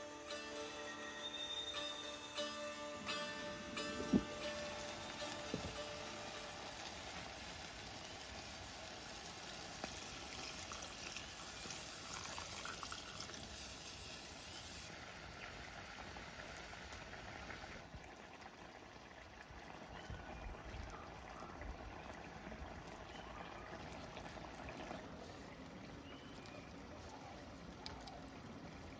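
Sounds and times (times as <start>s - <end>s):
steady rain: 3.1s - 13.2s.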